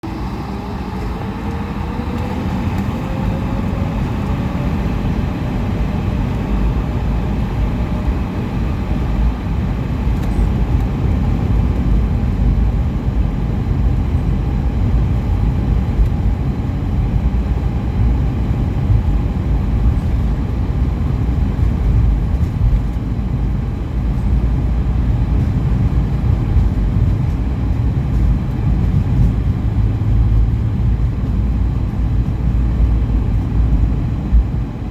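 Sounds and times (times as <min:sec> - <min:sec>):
jet engines spooling up: 0:00.0 - 0:10.4.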